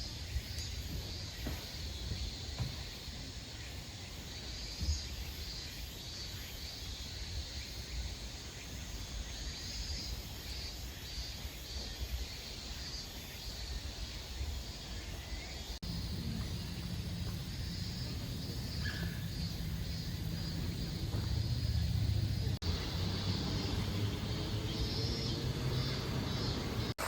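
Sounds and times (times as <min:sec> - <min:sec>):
insects chirping in pulses: 0:00.0 - 0:27.0
steady low rumble: 0:15.8 - 0:27.0.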